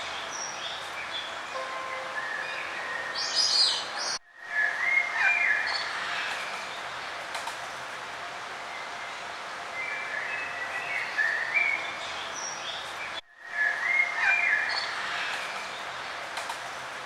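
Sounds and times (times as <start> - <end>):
songbirds singing: 0.0 - 6.9.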